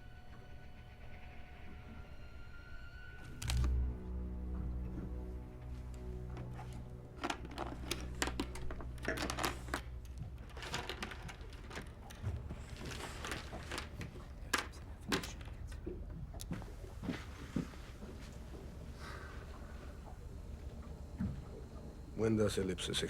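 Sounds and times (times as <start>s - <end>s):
low hum: 0.0s - 22.9s
poker chips clicking: 7.2s - 9.9s.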